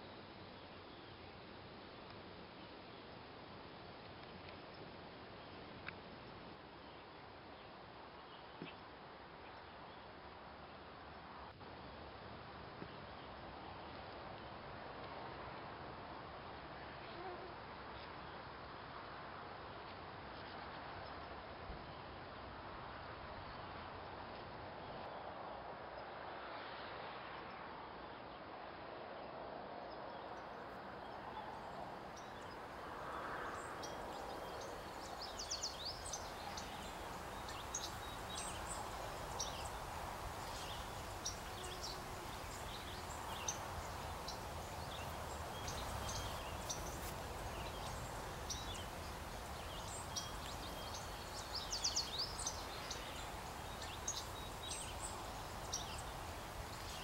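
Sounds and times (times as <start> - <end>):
small birds chirping: 30.2 - 57.0.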